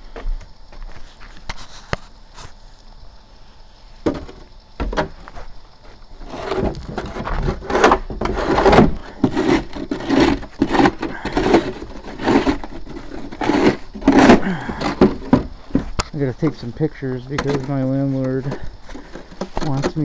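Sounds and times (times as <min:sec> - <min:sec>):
snow shovel scraping snow: 0:06.2 - 0:15.2.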